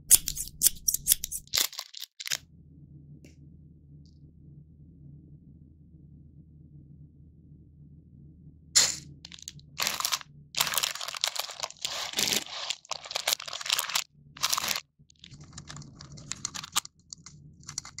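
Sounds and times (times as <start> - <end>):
plastic wrapper crinkling and tearing: 0.1 - 2.4, 9.3 - 18.0.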